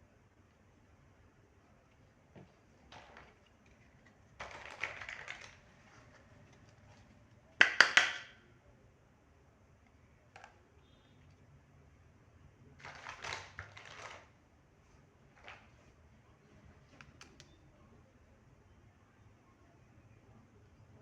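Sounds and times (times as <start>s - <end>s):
plastic toy pieces clicking: 4.4s - 5.6s.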